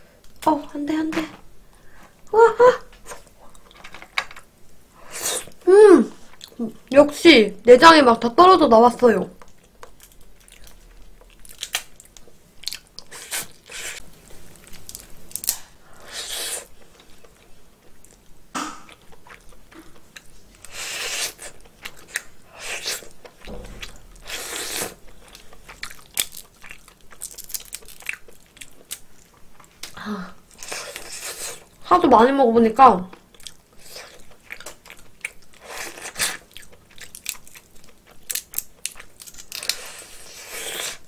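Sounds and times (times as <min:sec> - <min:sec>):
wet chewing of crab meat: 0:18.9 - 0:29.7, 0:33.3 - 0:41.0.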